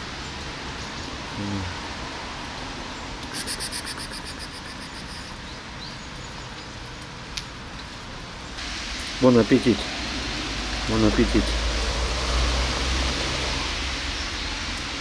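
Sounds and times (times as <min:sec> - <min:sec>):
rain hissing on pavement: 0:00.0 - 0:15.0
low vocal sound: 0:01.4 - 0:01.8.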